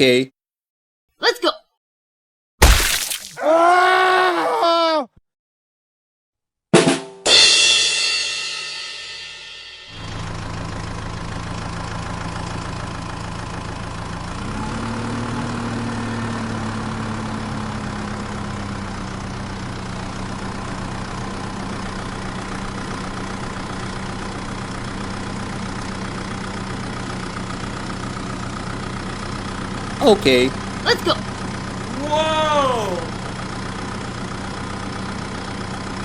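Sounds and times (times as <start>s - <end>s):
vehicle engine idling: 10.0s - 36.0s.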